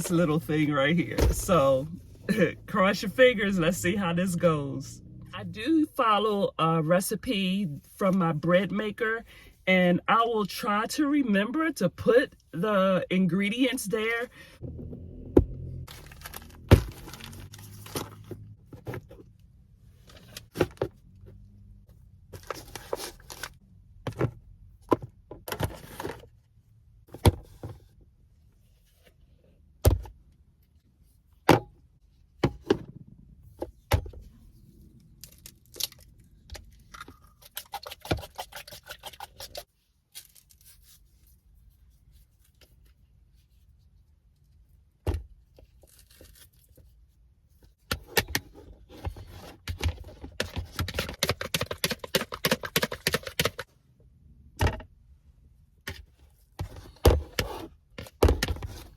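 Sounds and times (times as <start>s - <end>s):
packaging rustling: 15.9s - 18.1s.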